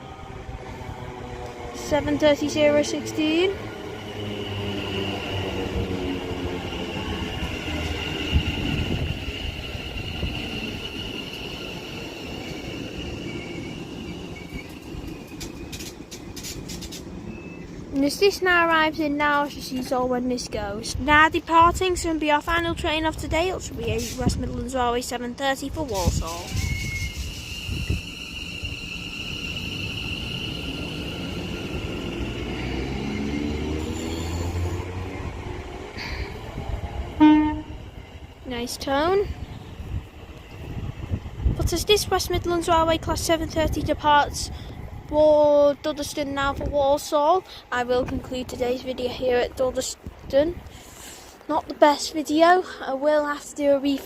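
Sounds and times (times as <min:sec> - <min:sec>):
train low rumble: 0:00.0 - 0:54.0
train high-pitched squeal: 0:02.0 - 0:17.8, 0:25.9 - 0:35.0, 0:37.1 - 0:38.4
high steady tone: 0:37.2 - 0:38.0.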